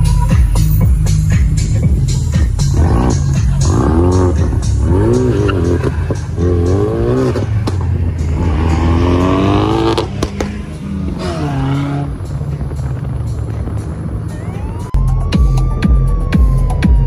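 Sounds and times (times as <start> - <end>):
car engine revving hard: 2.7 - 12.3.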